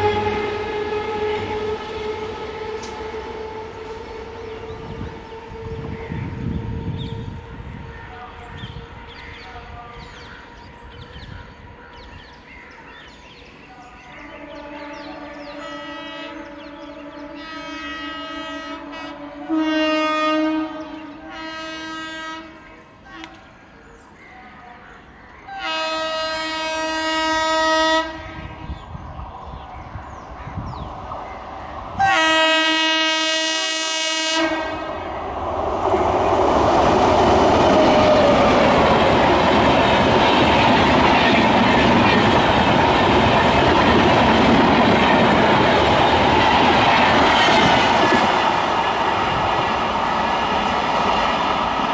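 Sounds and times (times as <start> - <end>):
train wheels rushing and clacking: 0.0 - 5.7, 35.4 - 51.9
train horn blasts: 0.0 - 10.8, 14.1 - 23.4, 25.5 - 28.8, 32.0 - 35.1.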